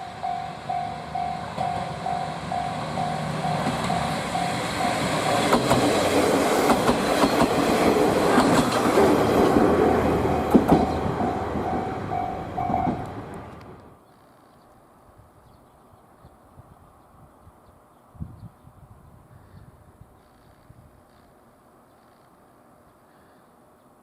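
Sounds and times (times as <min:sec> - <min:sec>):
level crossing bell beeping: 0:00.0 - 0:05.2, 0:10.4 - 0:13.2
train wheels clicking over rail joints: 0:00.2 - 0:13.9.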